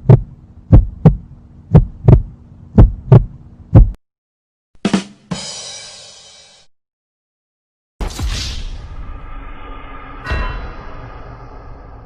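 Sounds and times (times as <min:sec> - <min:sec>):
heartbeat thuds: 0:00.0 - 0:04.0
bright hissing crash: 0:08.0 - 0:12.0.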